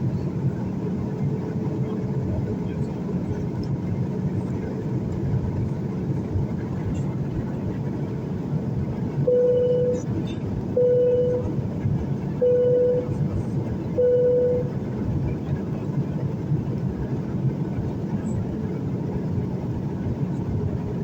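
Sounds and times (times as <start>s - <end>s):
airliner cabin roar: 0.0s - 21.0s
electronic beep: 9.3s - 10.0s, 10.8s - 11.5s, 12.4s - 13.1s, 14.0s - 14.7s.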